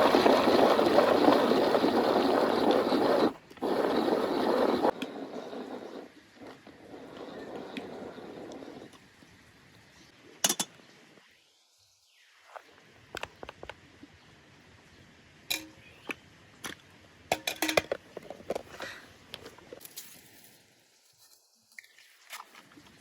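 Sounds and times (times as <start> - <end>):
dishes and utensils clinking: 15.5 - 15.8, 17.3 - 18.7.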